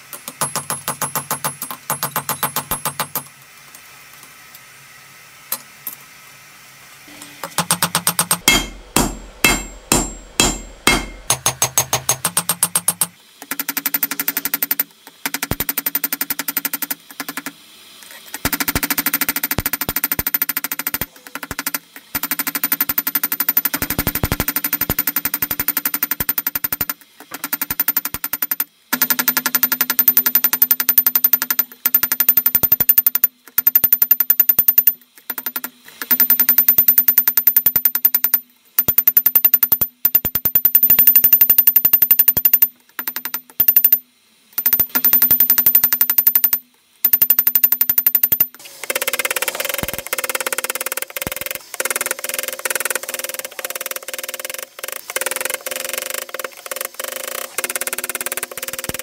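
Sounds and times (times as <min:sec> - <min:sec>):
hammer striking steel on anvil: 0:07.4 - 0:13.2.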